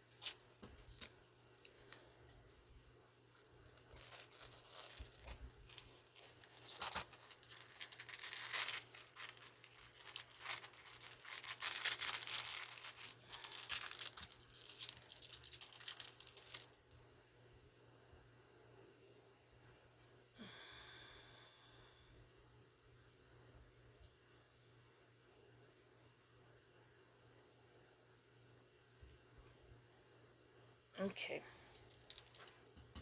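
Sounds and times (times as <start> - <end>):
packaging being torn and crinkled: 0.0 - 2.0, 3.7 - 16.8, 31.8 - 32.7.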